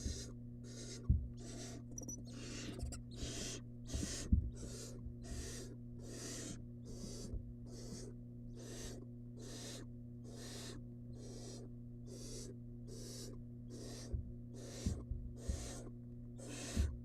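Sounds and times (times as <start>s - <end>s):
electrical hum: 0.0s - 17.0s
owl nestlings rasping hisses: 0.0s - 17.0s
knocks in wooden nest box: 14.0s - 15.8s.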